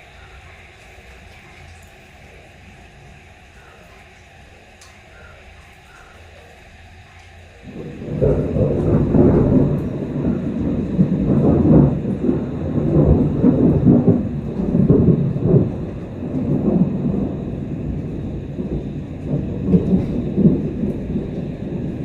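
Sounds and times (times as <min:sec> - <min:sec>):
rain falling: 0:00.0 - 0:22.0
rolling thunder: 0:07.6 - 0:22.0.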